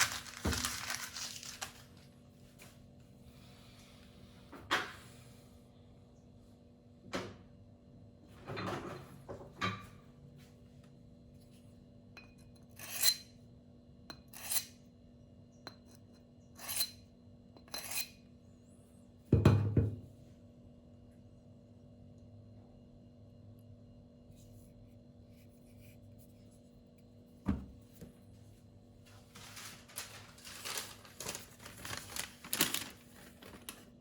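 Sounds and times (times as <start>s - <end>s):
knife scraping on whetstone: 12.7s - 13.3s, 14.3s - 14.8s, 16.6s - 17.0s, 17.7s - 18.2s.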